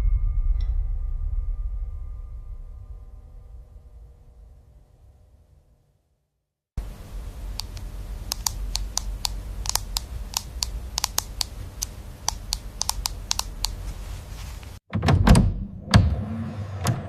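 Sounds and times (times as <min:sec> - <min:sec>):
steady low hum: 0:06.8 - 0:14.8
sharp clicks and taps: 0:07.5 - 0:14.0.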